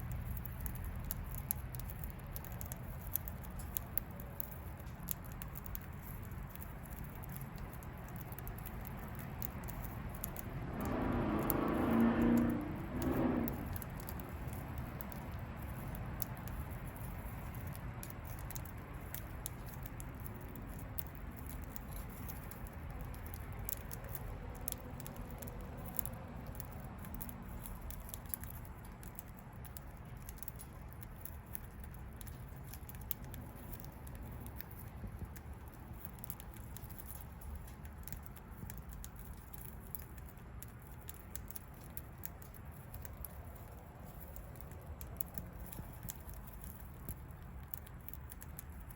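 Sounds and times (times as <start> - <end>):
bird pecking at seed: 0.2 - 48.9.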